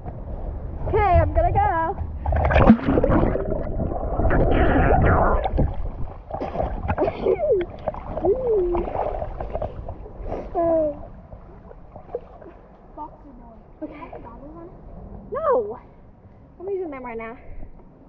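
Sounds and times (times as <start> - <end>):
low rumble on microphone: 0.0 - 16.3
river water splashing: 2.3 - 4.5, 5.4 - 10.5.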